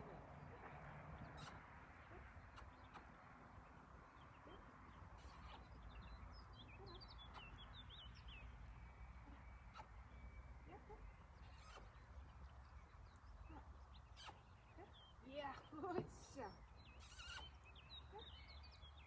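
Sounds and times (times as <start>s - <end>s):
faint birdsong: 0.0s - 19.0s
high bird chirps: 5.2s - 15.7s, 16.4s - 19.0s.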